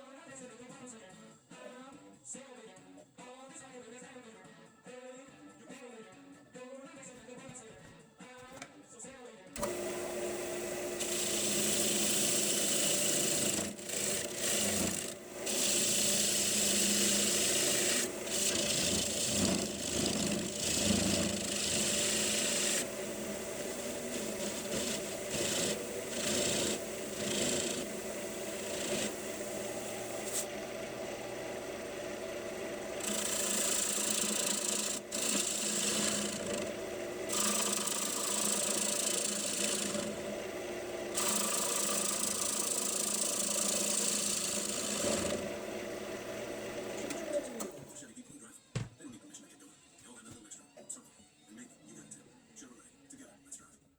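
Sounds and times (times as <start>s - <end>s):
tool rasping on spinning wood: 9.6s - 47.5s
wood lathe humming: 9.6s - 47.9s.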